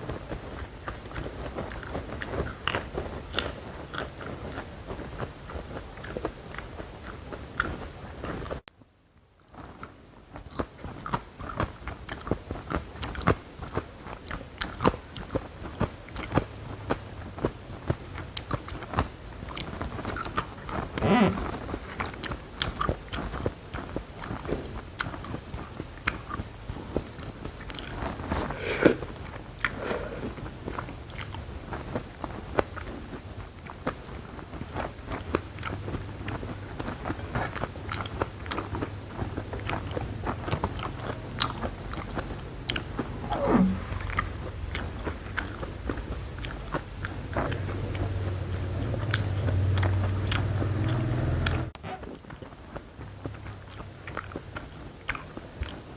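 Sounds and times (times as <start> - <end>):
crunchy chewing: 0.0 - 8.6, 9.4 - 55.9
low hum: 43.1 - 45.1.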